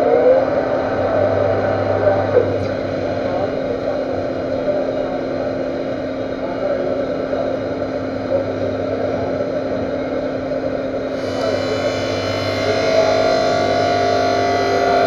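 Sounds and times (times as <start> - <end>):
metal lathe humming: 11.1 - 15.0.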